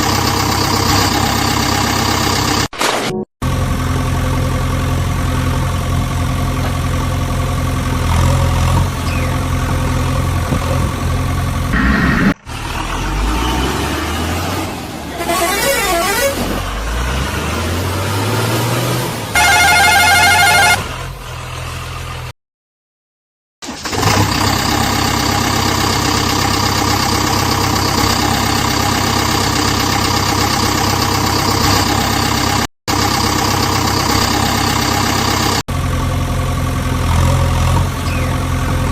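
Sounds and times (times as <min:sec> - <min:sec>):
vehicle engine revving: 0:07.4 - 0:22.3, 0:34.0 - 0:38.9
vehicle horn: 0:15.2 - 0:16.4, 0:19.3 - 0:20.9.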